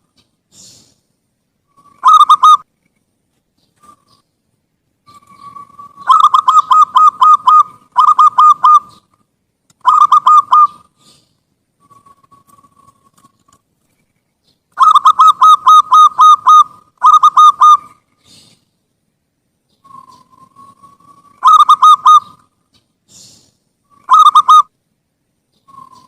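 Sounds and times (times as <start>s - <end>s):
dove cooing: 1.7s - 2.6s, 5.1s - 9.2s, 9.8s - 13.3s, 14.8s - 18.5s, 19.8s - 22.5s, 23.1s - 24.7s.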